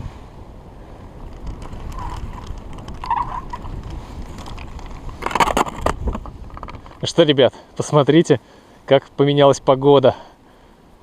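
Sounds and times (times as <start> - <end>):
strong wind buffeting microphone: 0.0 - 7.5.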